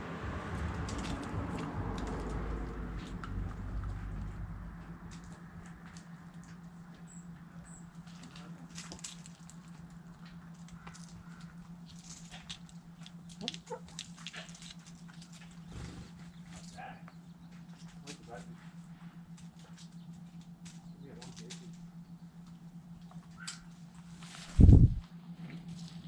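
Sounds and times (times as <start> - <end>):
steady low hum: 0.0 - 26.0
chickens pecking beak taps: 13.0 - 14.8.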